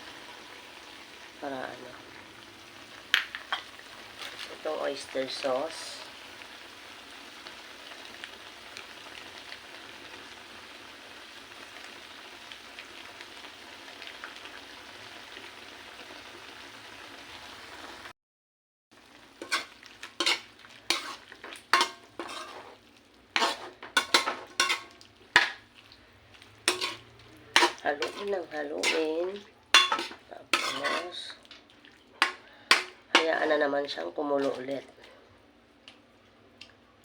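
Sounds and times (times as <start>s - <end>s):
meat sizzling in a pan: 0.0s - 18.1s, 19.0s - 33.8s
utensil scraping a pan: 19.4s - 22.8s, 23.4s - 25.6s, 26.6s - 31.4s, 32.2s - 33.6s.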